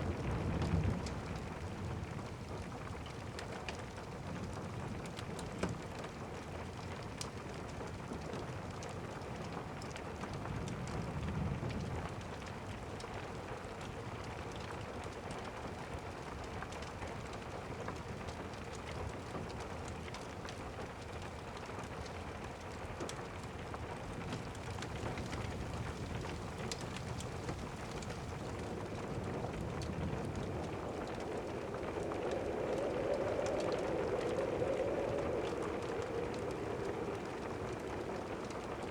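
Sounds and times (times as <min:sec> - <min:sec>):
steady rain falling: 0:00.0 - 0:38.9
fireplace fire crackling: 0:12.7 - 0:38.9
distant thunder rumbling: 0:24.6 - 0:38.9.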